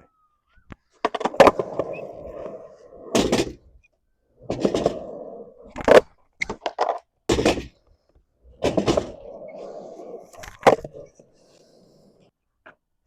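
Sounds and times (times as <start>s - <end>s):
skateboard tail popping: 0.7s - 3.8s
skateboard wheels rolling: 0.7s - 7.8s, 8.4s - 12.3s
skateboard landing on ground: 5.8s - 7.8s.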